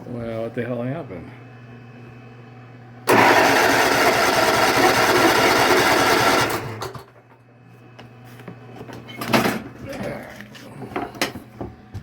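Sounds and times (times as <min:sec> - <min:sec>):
engine cranking with starter: 0:03.1 - 0:07.1.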